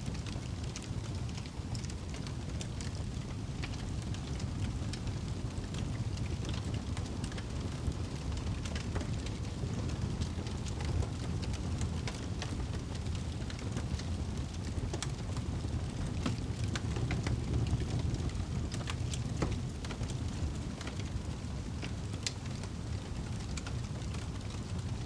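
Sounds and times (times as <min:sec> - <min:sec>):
wood fire crackling: 0:00.1 - 0:25.0.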